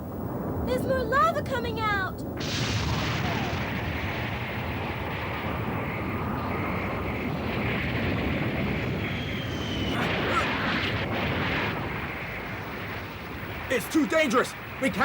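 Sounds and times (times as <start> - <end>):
rushing rumble: 0.0 - 15.0
faint high whistle: 9.0 - 10.6.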